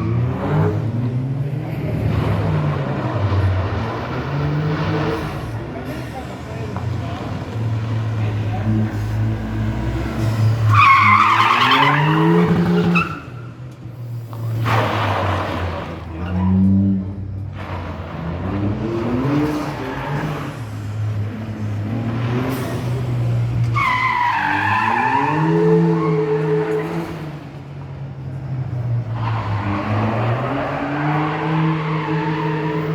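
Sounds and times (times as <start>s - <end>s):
car engine revving: 0.0s - 32.9s
tyres squealing: 5.2s - 13.8s, 22.1s - 27.4s.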